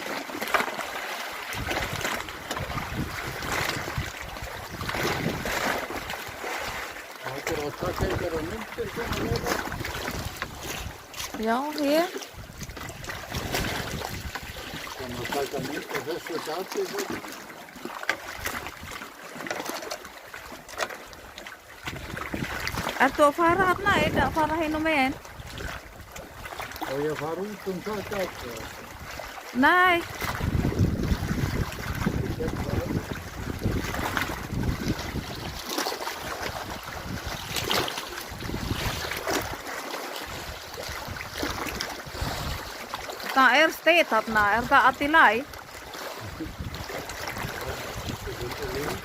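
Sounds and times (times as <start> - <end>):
low wash of water: 0.0 - 49.0
water splashing and dripping: 0.0 - 49.0
wind buffeting microphone: 1.6 - 6.1, 7.5 - 11.1, 12.0 - 15.7, 21.8 - 26.1, 29.8 - 39.6, 40.3 - 42.8, 44.3 - 49.0.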